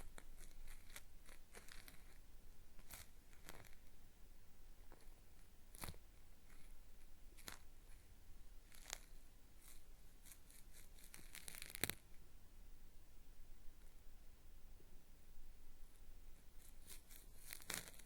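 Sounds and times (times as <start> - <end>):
cotton swab scraping microphone: 0.0 - 2.2, 2.8 - 3.9, 4.9 - 6.8, 7.4 - 12.1, 15.9 - 18.0.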